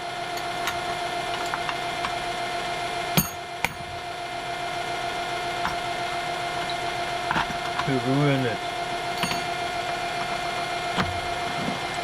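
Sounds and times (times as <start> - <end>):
metal lathe humming: 0.0 - 12.0
metallic clinks of tooling: 9.2 - 9.6.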